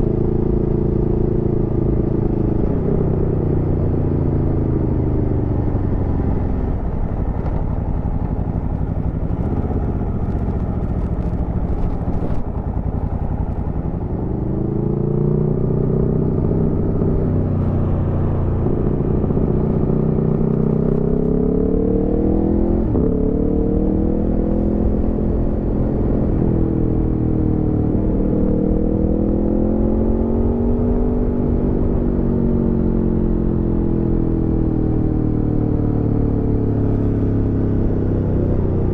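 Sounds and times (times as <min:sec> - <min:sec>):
motorcycle engine revving: 0:05.0 - 0:32.2.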